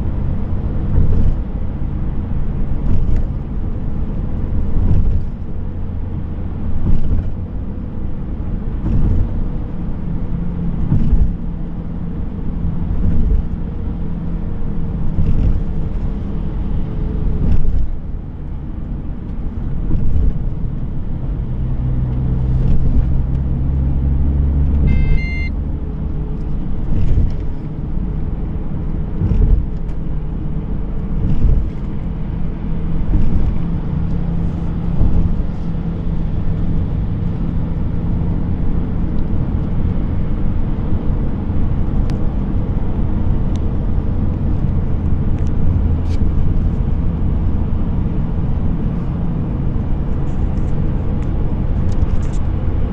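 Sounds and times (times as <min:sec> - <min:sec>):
car engine and tyre rumble: 0:00.0 - 0:52.9
short high beep: 0:24.8 - 0:25.6.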